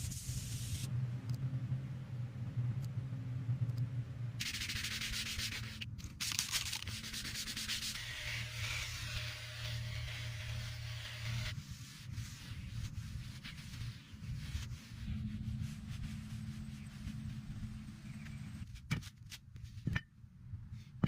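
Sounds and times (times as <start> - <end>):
sanding rasp: 6.7 - 18.3.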